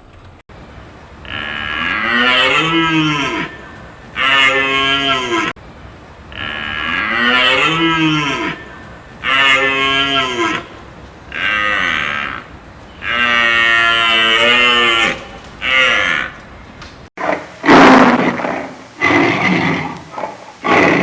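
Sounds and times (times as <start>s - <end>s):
cow mooing: 1.0s - 5.5s, 6.1s - 17.1s.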